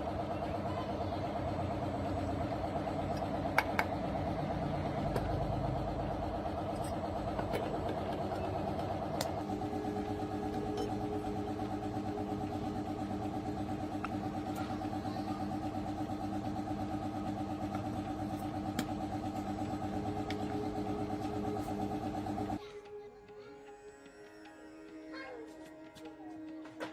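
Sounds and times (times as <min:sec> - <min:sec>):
tractor diesel engine running: 0:01.2 - 0:22.6.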